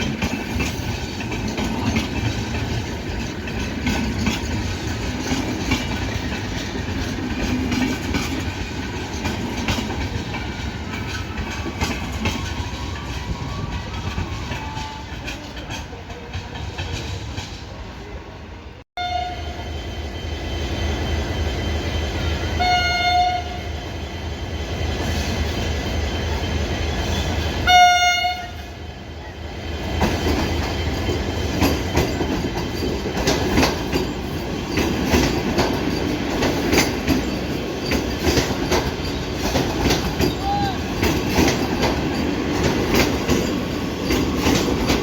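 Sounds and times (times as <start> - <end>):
train wheels clacking: 0.0 - 17.8, 29.8 - 45.0
train horn blasts: 19.0 - 19.6, 22.6 - 23.6, 27.6 - 28.8.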